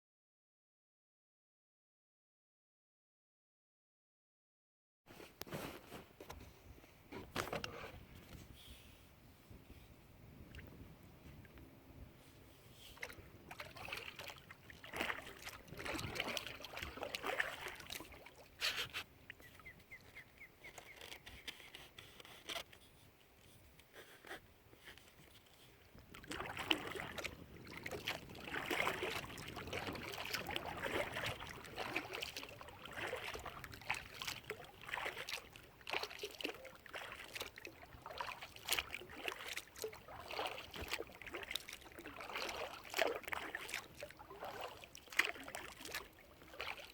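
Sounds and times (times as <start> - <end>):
paddle strokes splashing in water: 12.2 - 46.9.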